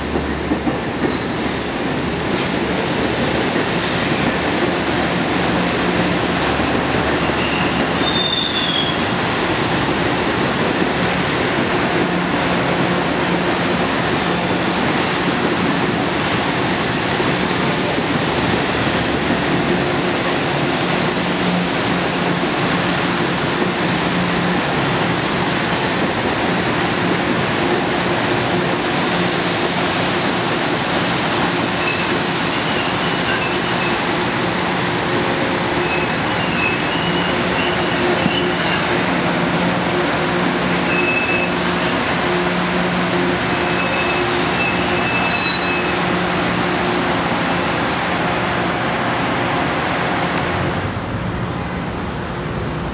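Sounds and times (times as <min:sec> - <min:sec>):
train wheels rumbling on rail: 0:00.0 - 0:52.9
faint high wheel squeals: 0:07.2 - 0:09.0, 0:43.7 - 0:46.0.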